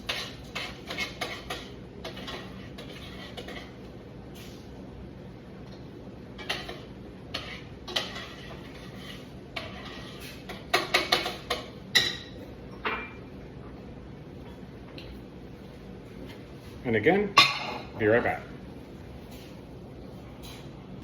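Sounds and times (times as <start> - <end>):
pots and utensils clattering: 0.0 - 3.8, 6.4 - 13.2, 17.4 - 18.0.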